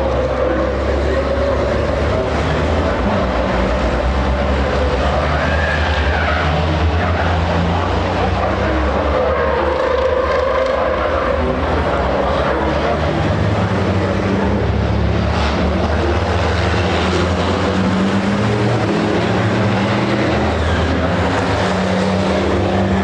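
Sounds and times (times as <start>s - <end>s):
truck engines running hard: 0.0s - 23.0s.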